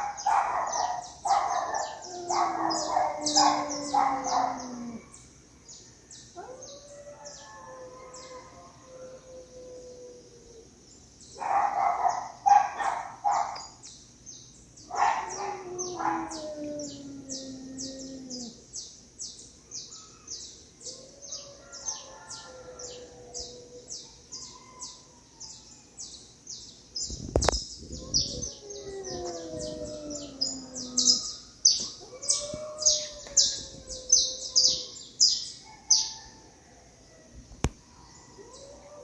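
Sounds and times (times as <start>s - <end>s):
cats yowling in a fight: 1.3s - 5.0s, 28.1s - 35.0s.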